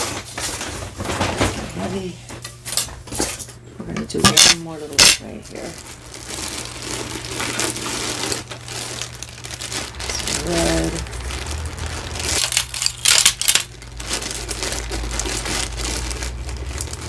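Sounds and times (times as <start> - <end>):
rustling handling noise: 0.0 - 17.0
jewelry clinking and clattering: 4.2 - 5.2, 12.1 - 13.7.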